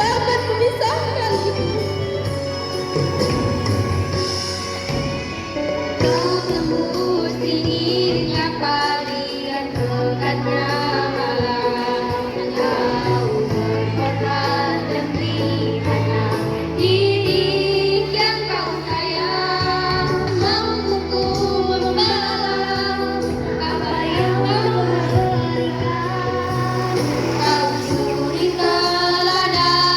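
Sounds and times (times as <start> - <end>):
instrumental accompaniment: 0.0 - 17.6
girls choir singing: 6.0 - 29.9.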